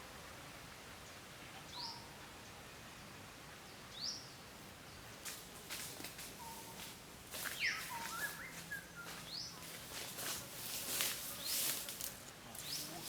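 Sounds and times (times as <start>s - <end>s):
bird chirps and whistles: 7.6s - 9.2s
rustling and crunching: 9.6s - 13.0s.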